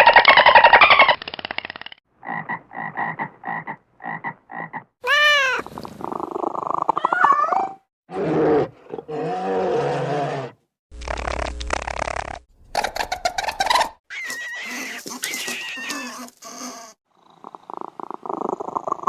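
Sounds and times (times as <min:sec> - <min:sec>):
animal calls: 0:12.8 - 0:17.0.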